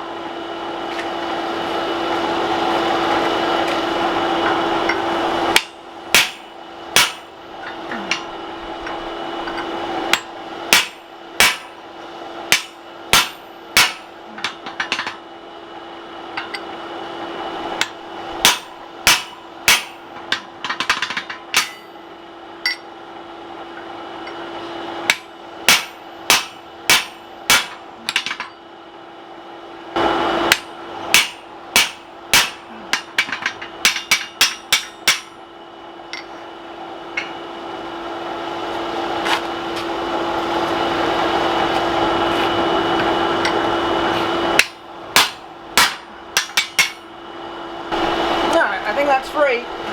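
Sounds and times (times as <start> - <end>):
hammer striking steel punch: 5.6 - 11.8, 12.5 - 15.2, 17.8 - 22.0, 25.1 - 28.6, 30.5 - 35.4, 44.6 - 47.1.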